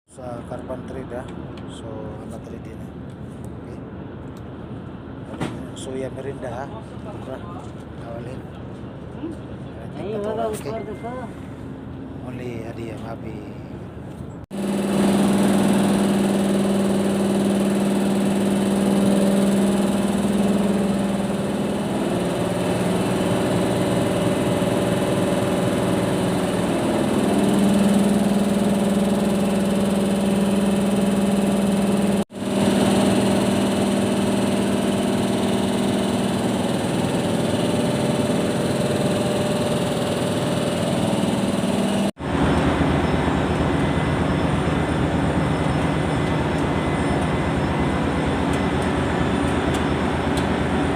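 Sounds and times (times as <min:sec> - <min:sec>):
air compressor humming: 0:11.4 - 0:50.9.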